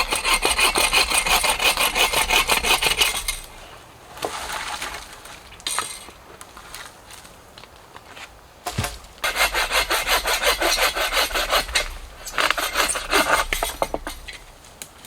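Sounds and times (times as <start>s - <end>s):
hand saw cutting wood: 0.0s - 3.5s, 9.2s - 14.4s.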